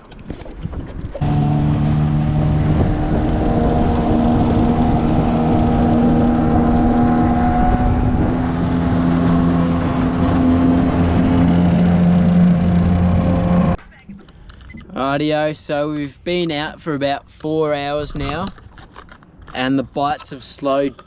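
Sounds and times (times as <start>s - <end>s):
wind buffeting microphone: 0.2s - 13.8s
outboard motor running: 0.9s - 13.8s.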